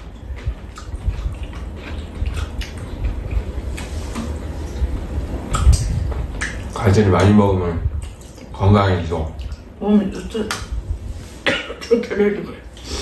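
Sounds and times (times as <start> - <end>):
wet chewing and mouth sounds: 0.0 - 8.6, 9.3 - 11.9.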